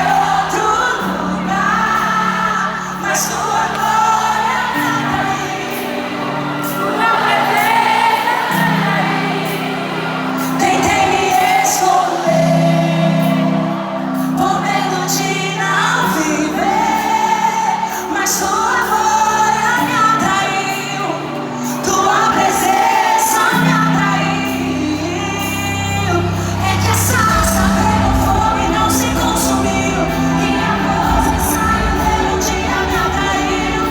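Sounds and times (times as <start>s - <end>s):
woman singing: 0.0s - 9.8s, 10.4s - 33.9s
band playing: 21.3s - 33.9s
sustained bass notes: 25.1s - 33.9s.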